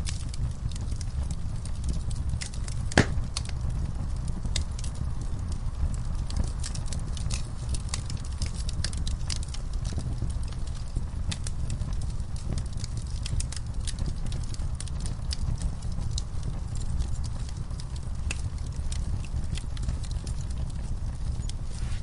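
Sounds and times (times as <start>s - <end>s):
low rumble of flame: 0.0s - 22.0s
wood fire crackling and popping: 0.0s - 22.0s.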